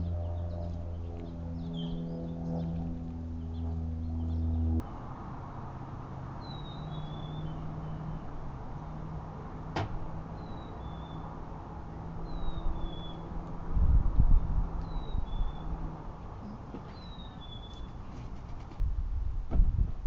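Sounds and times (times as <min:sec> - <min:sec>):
small bird chirping: 0:00.0 - 0:04.6, 0:06.4 - 0:08.4, 0:10.4 - 0:11.3, 0:12.2 - 0:13.3, 0:14.3 - 0:15.8, 0:16.4 - 0:18.6
low hum: 0:00.0 - 0:16.8
outdoor background noise: 0:00.0 - 0:20.0.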